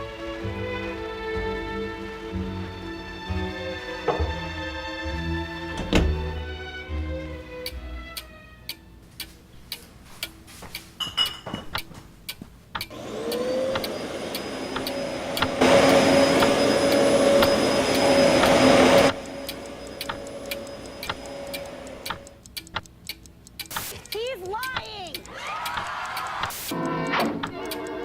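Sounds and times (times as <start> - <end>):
clock ticking: 7.6 - 28.0
electric motor whining: 12.9 - 22.2.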